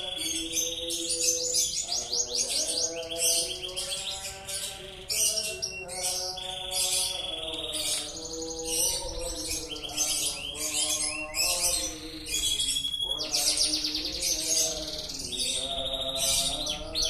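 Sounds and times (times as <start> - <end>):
canary singing trills: 0.0 - 17.0.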